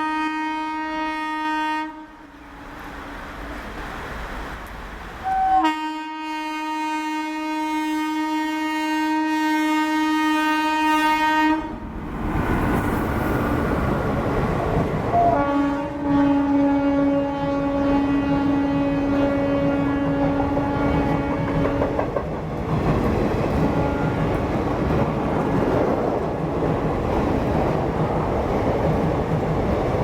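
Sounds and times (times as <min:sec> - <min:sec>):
locomotive horn blast: 0:00.0 - 0:02.7, 0:05.2 - 0:11.8, 0:15.1 - 0:22.0, 0:23.7 - 0:24.4
running train rushing: 0:00.0 - 0:06.9, 0:07.7 - 0:30.0.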